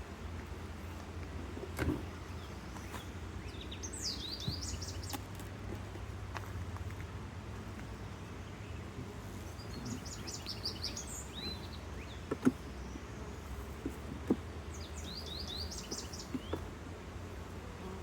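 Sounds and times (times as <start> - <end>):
songbird chirping: 1.8 - 5.4, 7.7 - 16.7
wooden knocks of hive boxes: 4.4 - 4.7, 12.1 - 12.8, 13.6 - 15.0, 15.6 - 16.7.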